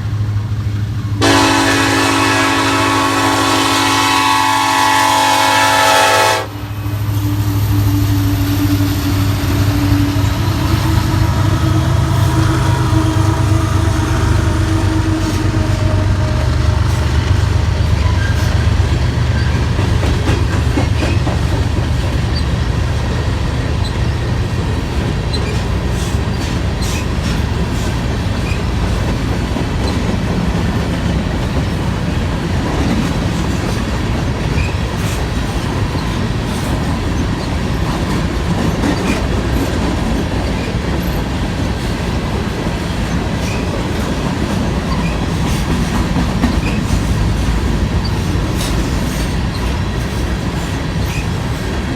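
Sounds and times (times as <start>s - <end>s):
steel wheels rumbling on rail: 0.0s - 51.9s
wheels clicking over rail joints: 16.7s - 51.9s.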